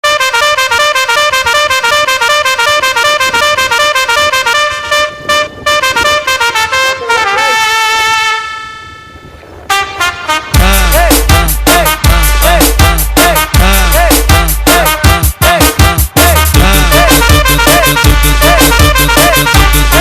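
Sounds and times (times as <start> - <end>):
bright horn-like notes: 0.0 - 20.0
dance beat with heavy bass: 10.6 - 20.0.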